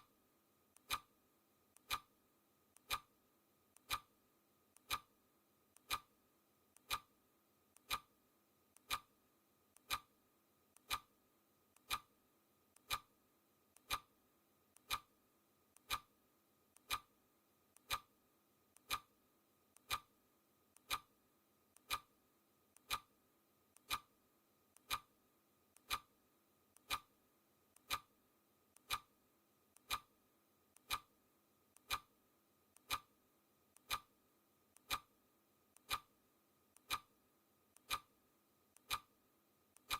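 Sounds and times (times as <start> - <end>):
clock ticking: 0.8 - 1.1, 1.8 - 2.1, 2.8 - 3.1, 3.7 - 4.1, 4.7 - 5.1, 5.7 - 6.1, 6.7 - 7.1, 7.8 - 8.1, 8.7 - 9.1, 9.7 - 10.1, 10.8 - 11.1, 11.7 - 12.1, 12.8 - 13.1, 13.7 - 14.1, 14.7 - 15.1, 15.7 - 16.1, 16.7 - 17.1, 17.8 - 18.1, 18.7 - 19.1, 19.7 - 20.1, 20.7 - 21.1, 21.7 - 22.1, 22.7 - 24.1, 24.8 - 25.1, 25.7 - 26.1, 26.7 - 27.1, 27.8 - 28.1, 28.8 - 29.1, 29.8 - 30.1, 30.8 - 31.1, 31.8 - 32.1, 32.7 - 33.1, 33.8 - 34.1, 34.8 - 35.1, 35.8 - 37.2, 37.8 - 39.2.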